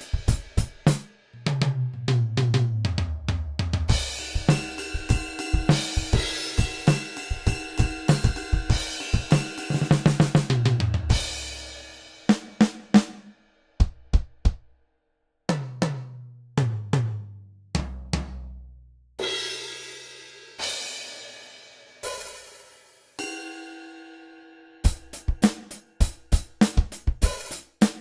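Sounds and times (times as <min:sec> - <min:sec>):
drum fill: 0:00.0 - 0:14.6
cymbal strikes ringing out: 0:20.6 - 0:25.3.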